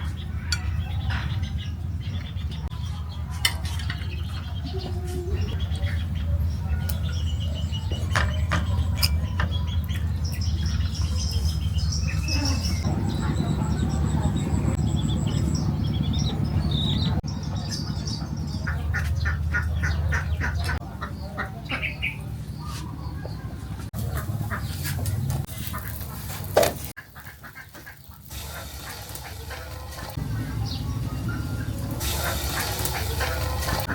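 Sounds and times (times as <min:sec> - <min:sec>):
birds clucking and squawking: 0:00.0 - 0:33.9
steady low rumble: 0:08.7 - 0:26.2, 0:28.2 - 0:33.9.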